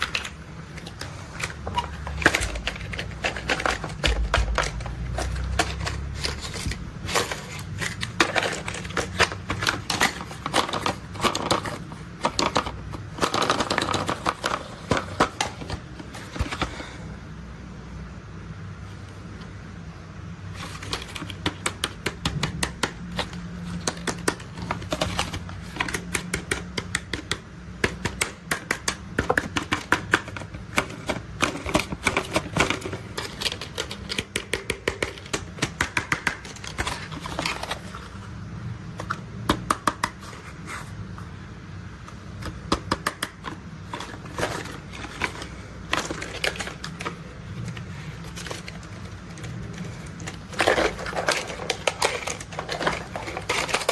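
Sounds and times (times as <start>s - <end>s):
steady low hum: 0.0s - 26.5s.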